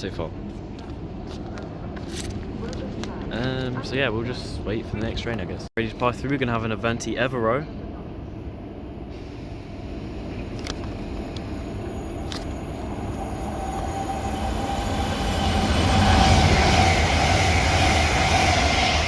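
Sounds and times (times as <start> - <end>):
train passing: 6.0 - 19.0.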